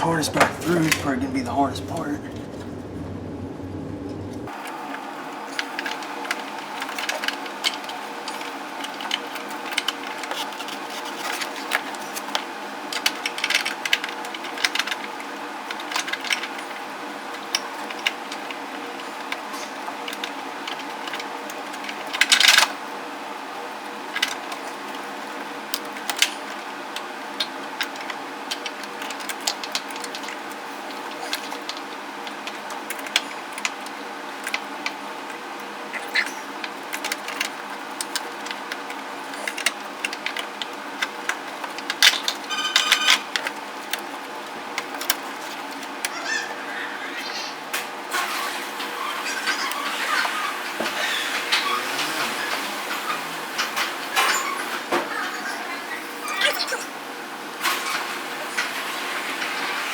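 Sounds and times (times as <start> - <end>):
steady background hum: 0.0 - 59.9
clicks taps and rustles of wiring: 4.5 - 22.8, 23.6 - 46.2.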